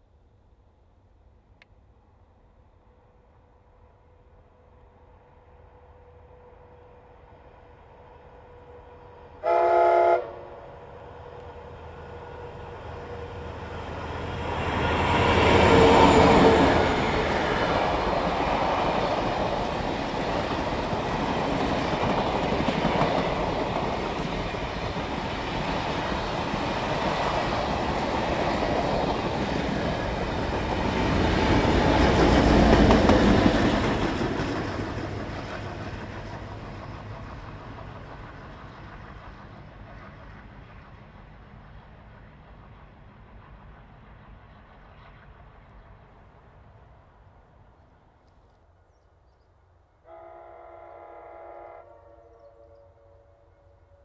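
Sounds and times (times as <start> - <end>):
train wheels on rails: 10.6 - 48.6.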